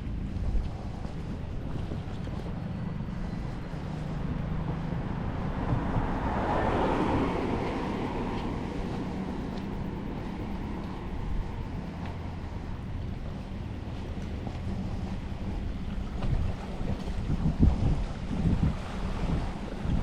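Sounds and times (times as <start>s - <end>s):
vehicle engine passing: 0.0s - 17.4s
wind rumble on microphone: 0.0s - 20.0s.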